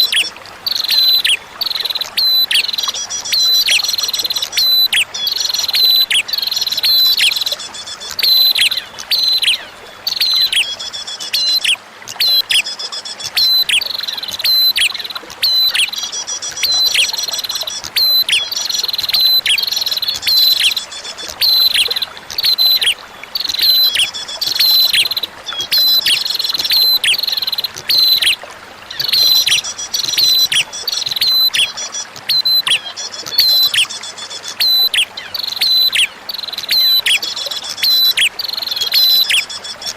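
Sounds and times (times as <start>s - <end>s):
bird chirping: 0.0s - 39.9s
faint trickle of flowing water: 0.0s - 39.9s.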